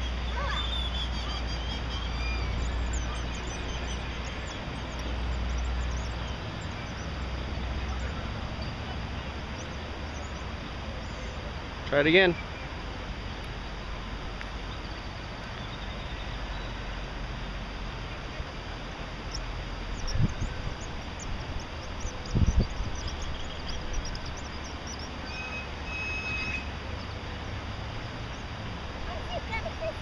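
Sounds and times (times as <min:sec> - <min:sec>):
low outdoor rumble: 0:00.0 - 0:30.0
small birds chirping: 0:00.0 - 0:30.0
dull low thumps: 0:19.9 - 0:25.0.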